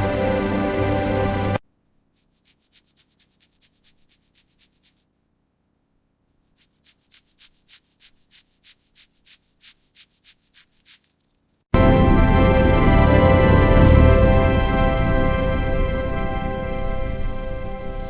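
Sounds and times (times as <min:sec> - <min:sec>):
rhythmic scraping strokes: 0:02.0 - 0:05.2, 0:06.4 - 0:11.2.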